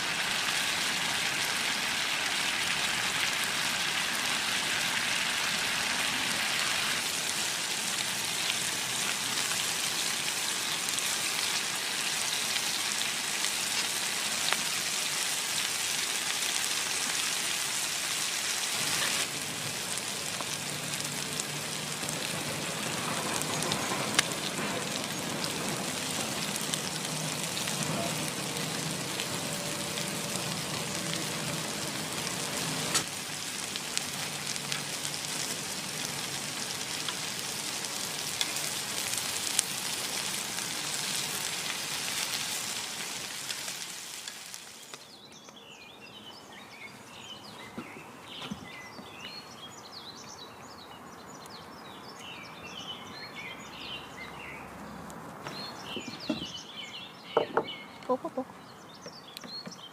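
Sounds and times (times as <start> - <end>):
frying sizzle with crackles: 0.0 - 50.4, 52.2 - 58.4
birds chirping: 44.6 - 59.9.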